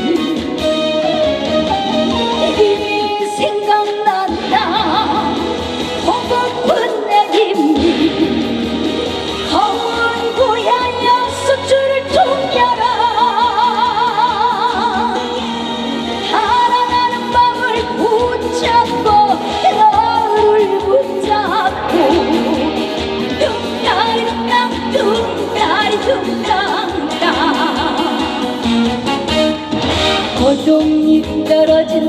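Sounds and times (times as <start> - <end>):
live trot band music: 0.0 - 2.8, 21.7 - 31.6.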